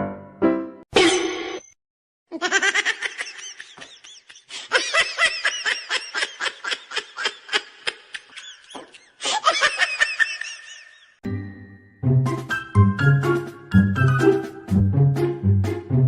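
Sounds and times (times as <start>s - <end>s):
high-pitched laughter: 2.3s - 11.2s.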